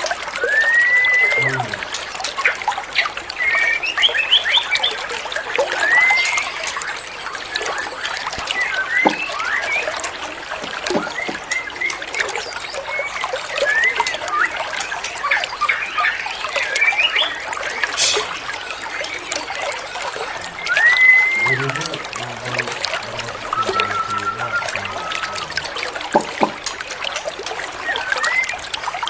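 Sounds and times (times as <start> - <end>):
bird singing whistled notes: 0.4 - 1.6, 5.8 - 6.6, 7.7 - 10.0, 12.9 - 14.6, 20.6 - 22.0, 23.6 - 25.7, 27.8 - 28.5.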